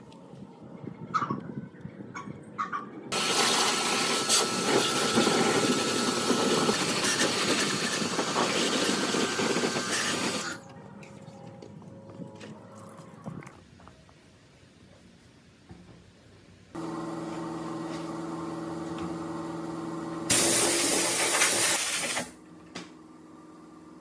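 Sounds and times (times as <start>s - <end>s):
power tool hissing: 3.1s - 10.6s, 20.3s - 22.3s.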